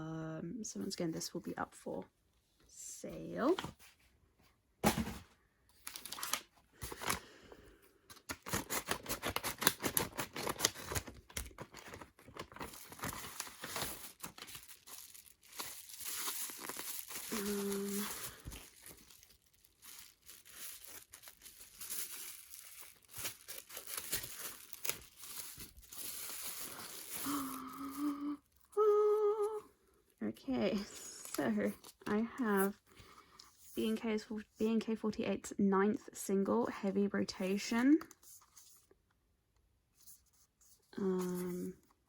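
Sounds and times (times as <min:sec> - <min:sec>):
packaging crinkling and tearing: 0:05.8 - 0:07.2, 0:08.1 - 0:28.1
person humming a note: 0:27.3 - 0:29.6.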